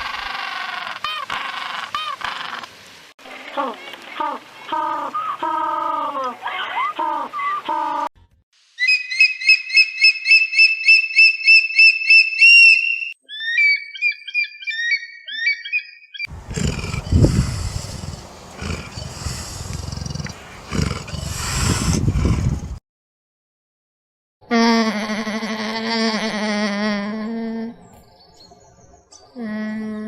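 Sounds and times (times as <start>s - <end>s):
bird whistling notes: 8.8s - 20.3s
bird chirps: 8.8s - 21.6s
big cat roaring: 16.3s - 22.8s.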